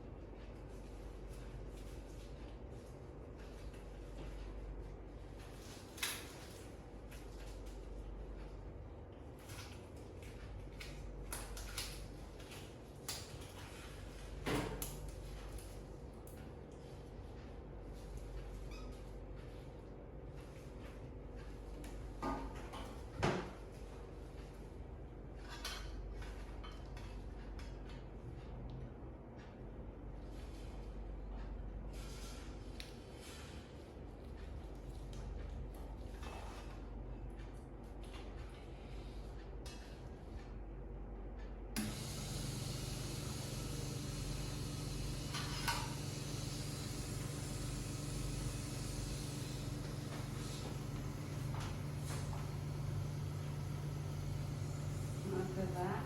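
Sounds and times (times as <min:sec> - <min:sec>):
suction machine motor hum: 0:41.8 - 0:56.0.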